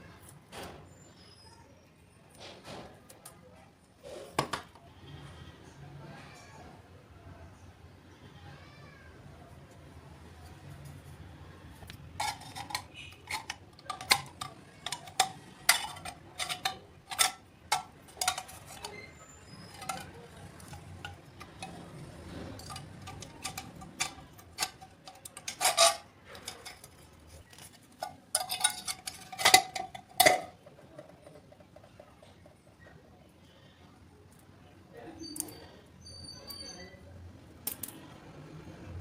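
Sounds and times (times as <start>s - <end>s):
small hard objects clinking: 11.9s - 32.8s.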